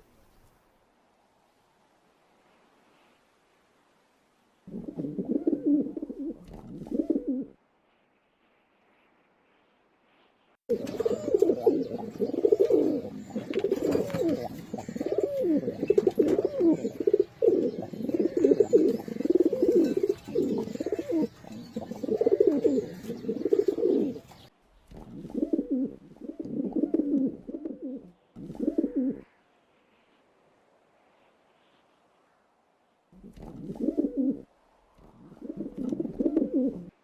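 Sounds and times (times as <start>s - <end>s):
pigeon cooing: 4.7s - 7.6s, 10.7s - 29.2s, 33.2s - 36.9s.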